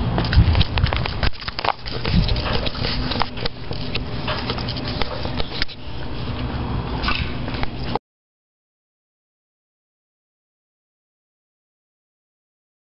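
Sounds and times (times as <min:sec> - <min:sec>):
brush rustling and crackling: 0:00.3 - 0:06.5
twigs snapping: 0:00.6 - 0:04.1.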